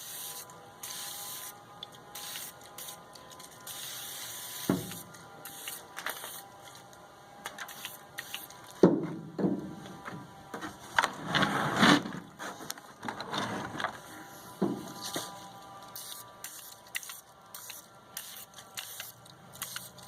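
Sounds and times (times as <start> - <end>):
parts clunking and knocking: 8.7 - 15.3.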